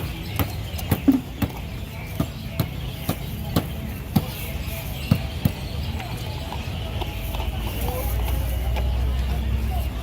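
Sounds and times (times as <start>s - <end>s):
busy market din: 0.0s - 10.0s.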